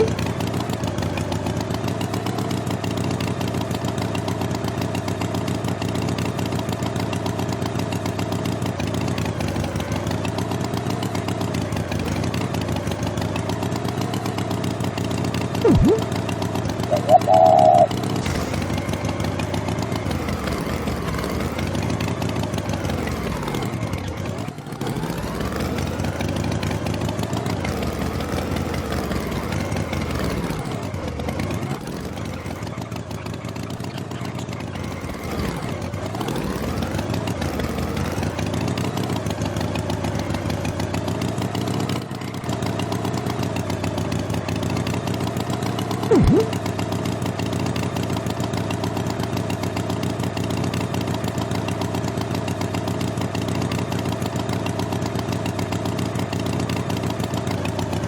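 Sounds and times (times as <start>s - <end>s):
engine running: 0.0s - 42.0s, 42.9s - 47.8s
brief sharp sound: 15.6s - 16.1s, 16.9s - 17.9s, 46.1s - 46.6s.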